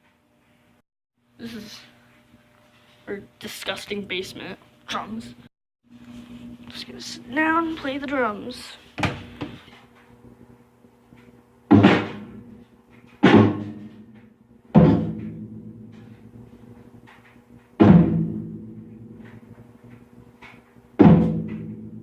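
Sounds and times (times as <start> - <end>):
heavy drum kit hits: 11.7 - 12.5, 13.2 - 16.5, 17.8 - 19.3, 21.0 - 22.0.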